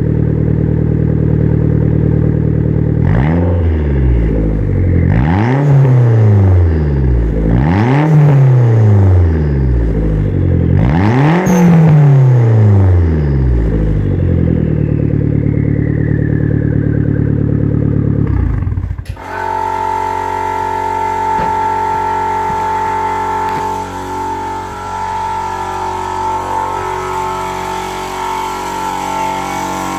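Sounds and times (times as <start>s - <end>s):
engine exhaust revving: 0.0s - 29.9s
high steady whine: 11.4s - 29.9s.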